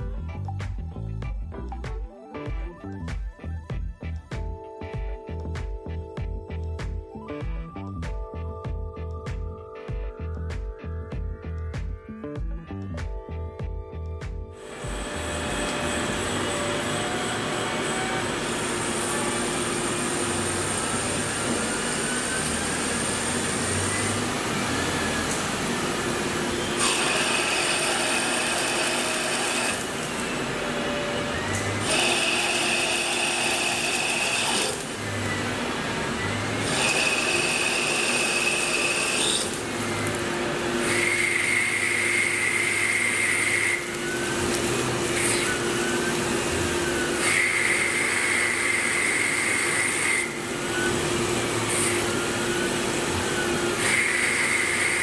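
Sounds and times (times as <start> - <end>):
high-pitched cutting whine: 14.0 - 55.0
lathe machine hum: 14.6 - 55.0.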